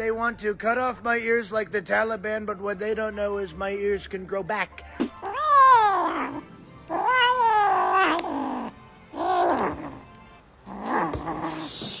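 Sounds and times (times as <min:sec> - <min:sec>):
cat yowling: 0:05.2 - 0:10.1.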